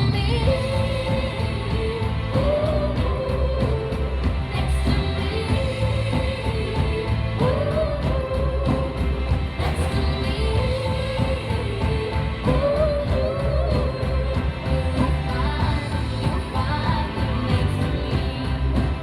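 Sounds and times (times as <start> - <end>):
person singing: 0.0 - 19.0
pop-rock band playing: 0.0 - 19.0.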